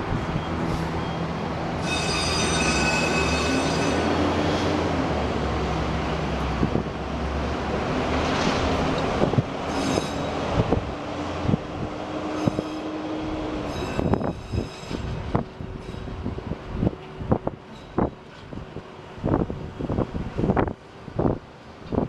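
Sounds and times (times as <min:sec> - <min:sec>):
train wheels squealing: 0:00.4 - 0:04.6, 0:09.7 - 0:10.4, 0:12.3 - 0:13.0, 0:13.6 - 0:16.2
train wheels clicking on rails: 0:13.5 - 0:18.9.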